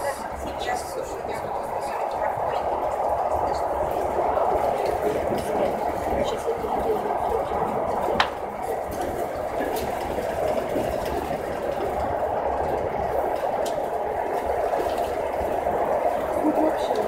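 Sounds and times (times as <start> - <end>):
train wheels rushing on rail: 0.0 - 17.0.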